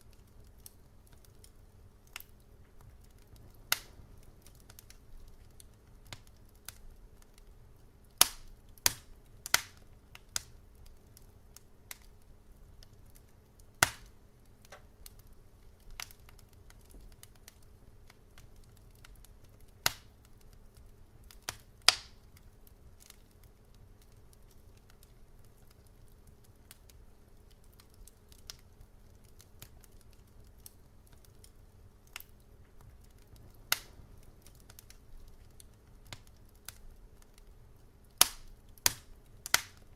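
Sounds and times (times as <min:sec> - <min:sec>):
low steady hum: 0:00.0 - 0:39.9
wood fire crackling: 0:00.0 - 0:39.9.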